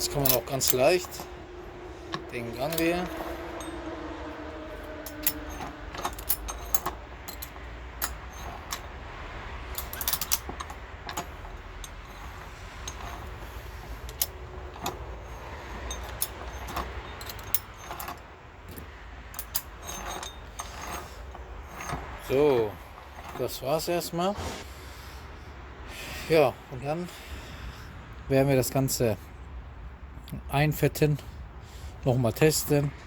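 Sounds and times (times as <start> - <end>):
metallic gear selector clicks: 4.9 - 8.9, 9.7 - 12.3.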